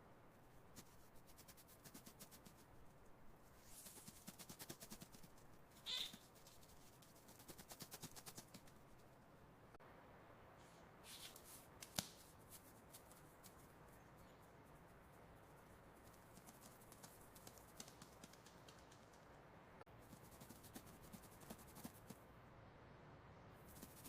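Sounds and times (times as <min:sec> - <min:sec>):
mouse scratching: 0:00.8 - 0:02.7, 0:03.6 - 0:09.1, 0:14.6 - 0:19.3, 0:20.0 - 0:22.2, 0:23.6 - 0:24.0
mouse squeak: 0:05.8 - 0:06.3.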